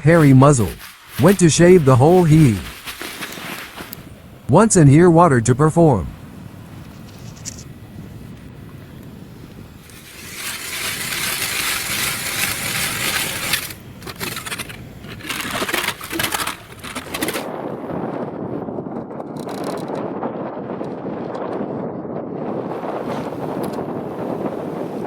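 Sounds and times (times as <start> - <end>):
ice and snow scraping: 0.1 - 4.2, 9.8 - 17.5.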